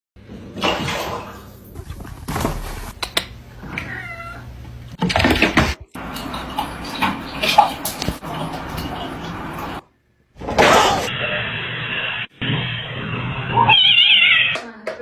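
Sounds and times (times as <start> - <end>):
cat meowing: 3.7 - 4.5, 13.5 - 14.8.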